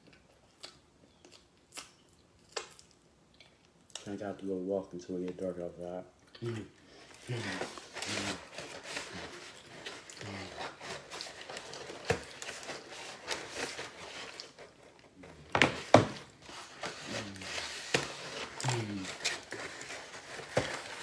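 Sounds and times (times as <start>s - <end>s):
chewing mouth noises: 0.0s - 4.2s.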